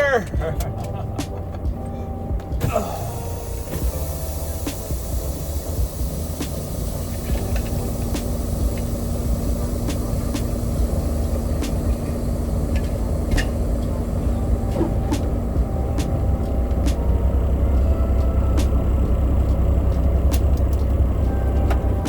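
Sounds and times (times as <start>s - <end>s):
truck engine rumbling: 0.0s - 22.0s
steady hum: 0.4s - 22.0s
sharp clicks and rattles: 19.4s - 21.9s.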